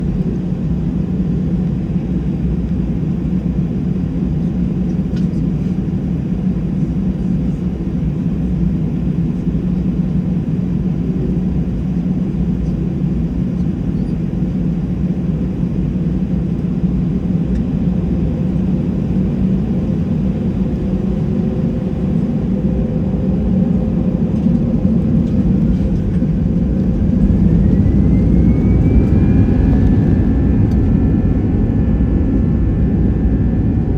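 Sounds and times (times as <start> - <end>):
jet engines rumbling: 0.0 - 33.9
engine whine rising in pitch: 20.6 - 33.9.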